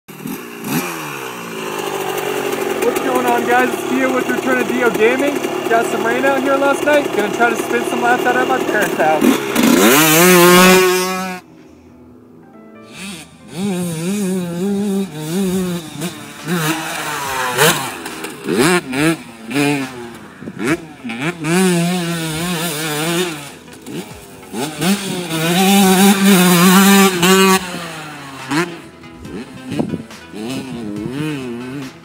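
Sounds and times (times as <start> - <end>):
dirt bike engine revving: 0.1 - 11.5, 12.9 - 32.0.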